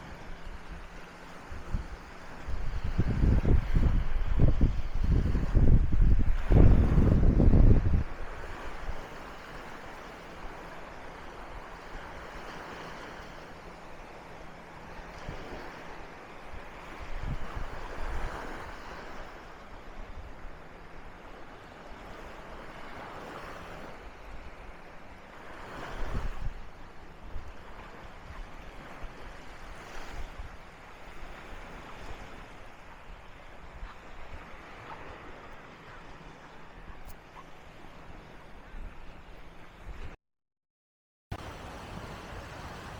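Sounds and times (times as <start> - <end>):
wind buffeting microphone: 0.0 - 9.2, 16.4 - 20.7, 25.6 - 37.5, 38.1 - 40.2
surf breaking on sandy beach: 0.0 - 39.2, 41.3 - 42.9.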